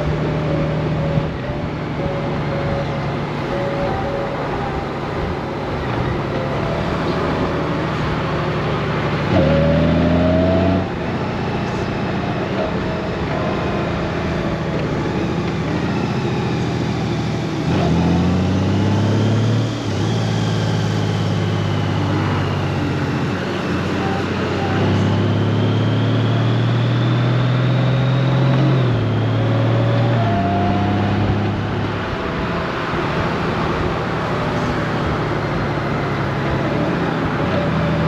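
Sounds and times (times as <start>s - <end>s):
motorcycle engine running: 0.0s - 38.0s
road and wind noise: 0.0s - 38.0s.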